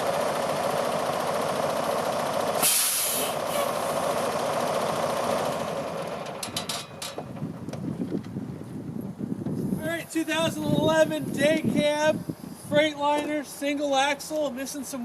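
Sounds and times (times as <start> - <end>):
air hiss: 2.6 - 3.7.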